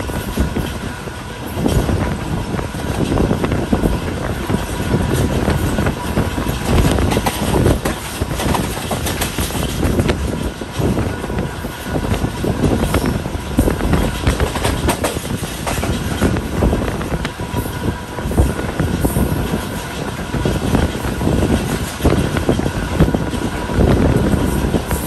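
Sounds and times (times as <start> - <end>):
train wheels rumbling on rails: 0.0 - 25.0
clatter and rattling: 2.8 - 11.0.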